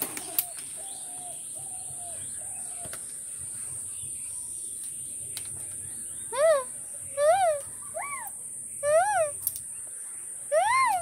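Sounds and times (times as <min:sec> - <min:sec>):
steady high-pitched hiss: 0:00.0 - 0:11.0
bird calling: 0:06.3 - 0:09.4, 0:10.5 - 0:11.0.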